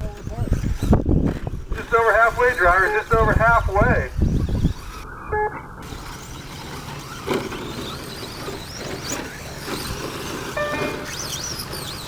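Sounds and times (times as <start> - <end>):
electric motors whining: 0.0 - 12.0
short electronic beep: 5.1 - 5.6, 10.6 - 11.3.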